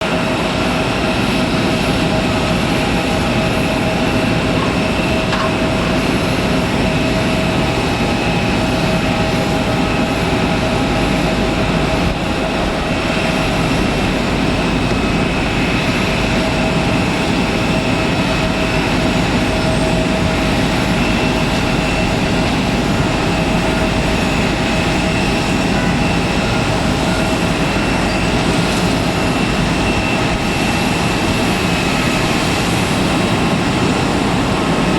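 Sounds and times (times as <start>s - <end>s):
jet engine whine: 0.0s - 34.9s
jet engines rushing: 0.0s - 34.9s.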